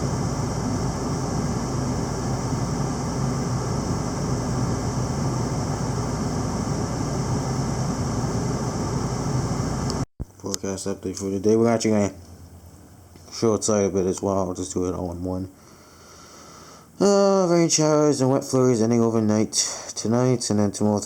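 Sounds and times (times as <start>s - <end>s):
low droning hum: 0.0s - 15.0s
hiss and rumble: 0.0s - 21.0s.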